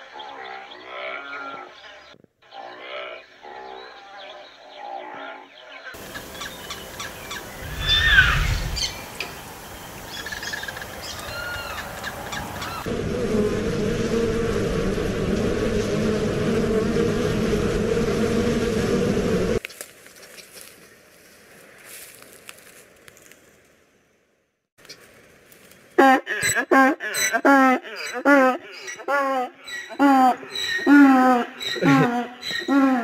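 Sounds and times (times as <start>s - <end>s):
bird chirps: 5.5s - 12.9s
honeybees buzzing: 6.0s - 19.6s, 30.8s - 33.0s
loud falling squeal: 7.6s - 9.0s.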